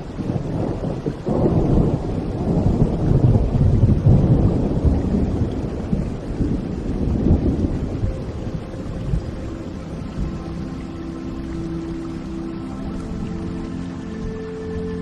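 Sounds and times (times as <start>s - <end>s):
rolling thunder: 0.0s - 10.8s
rain: 0.0s - 15.0s.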